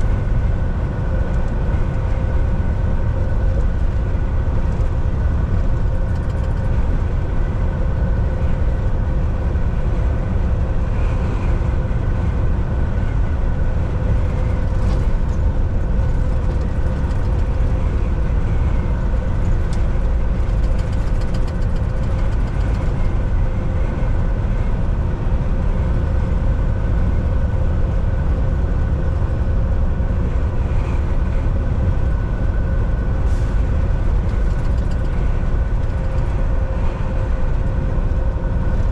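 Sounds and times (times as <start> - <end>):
truck engine drone: 0.0 - 38.9.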